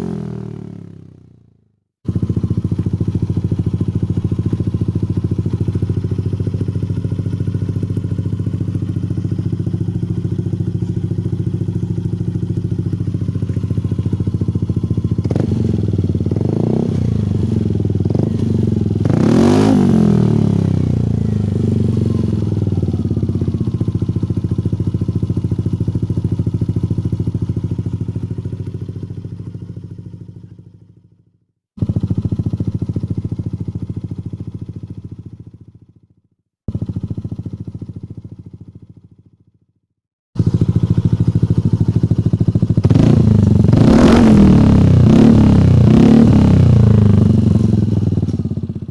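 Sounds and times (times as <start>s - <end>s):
scooter engine idling and revving: 0.0s - 36.1s, 36.7s - 39.6s, 40.4s - 48.9s.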